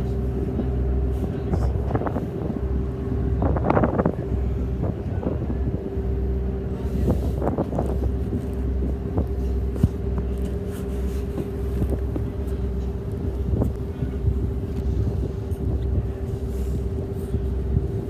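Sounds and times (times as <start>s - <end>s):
vehicle engine drone: 0.0s - 18.0s.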